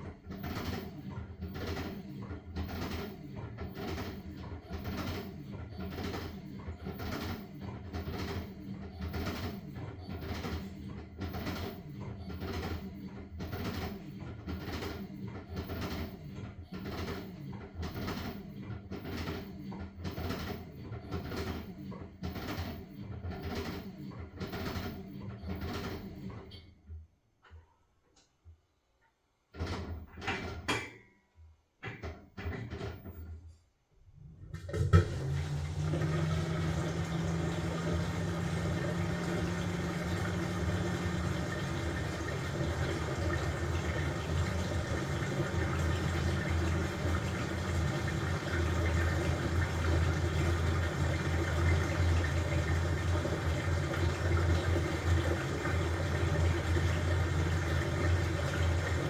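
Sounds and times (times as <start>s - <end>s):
washing machine hum: 0.0s - 28.8s, 31.8s - 59.0s.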